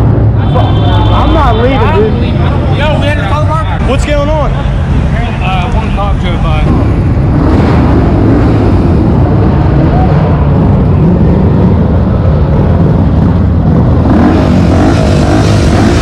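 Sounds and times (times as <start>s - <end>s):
loud car engines and exhaust: 0.0s - 16.0s.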